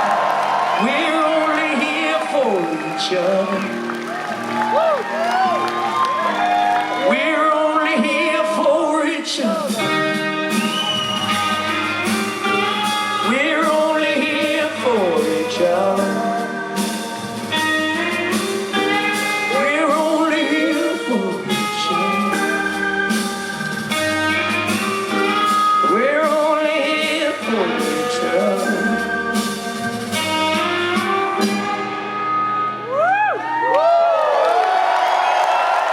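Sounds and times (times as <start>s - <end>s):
person singing: 0.7s - 4.1s, 6.2s - 10.3s, 11.6s - 32.0s
electric guitars and bass: 9.5s - 34.3s.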